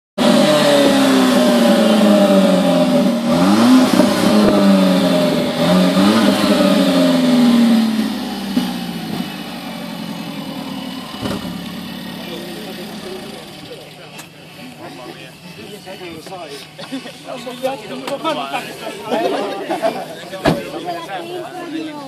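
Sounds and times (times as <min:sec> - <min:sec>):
engine throttle blips: 0:00.2 - 0:17.3
car engine idling: 0:00.2 - 0:19.2.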